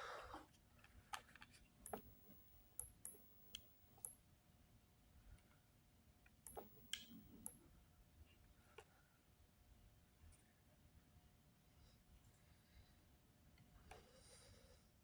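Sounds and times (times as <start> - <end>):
faint sharp clicks: 1.8 - 4.2, 6.4 - 7.6.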